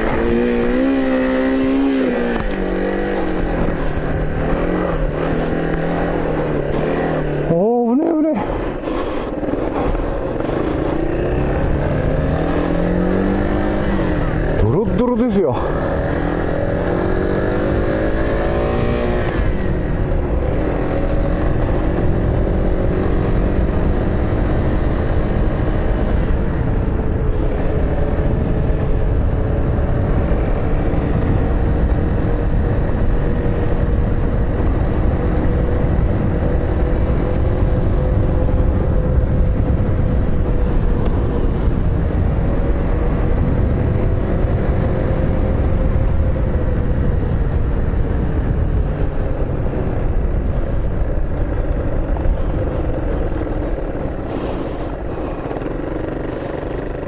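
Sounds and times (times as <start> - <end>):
car engine accelerating: 0.0 - 27.5
low road rumble: 0.0 - 57.0.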